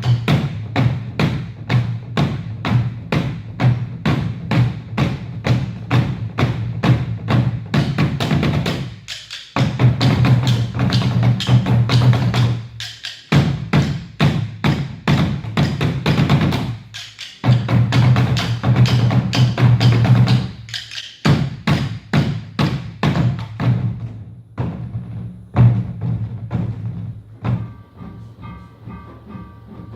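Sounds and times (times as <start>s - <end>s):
rapid drum strikes: 0.0s - 29.9s.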